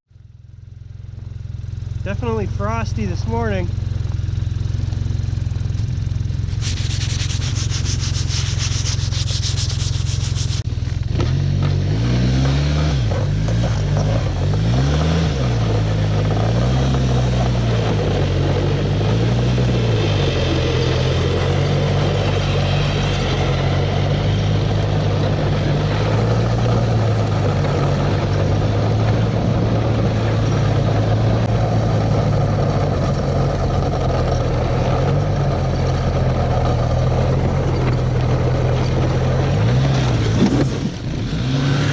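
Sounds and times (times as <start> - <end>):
snowmobile engine running: 1.1 - 41.9
hissing rush: 6.4 - 10.6.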